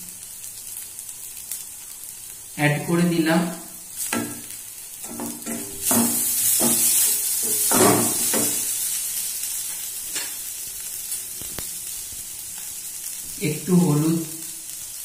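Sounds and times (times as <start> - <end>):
vegetables sizzling in oil: 0.0 - 15.0
wooden spatula scraping: 5.1 - 8.7.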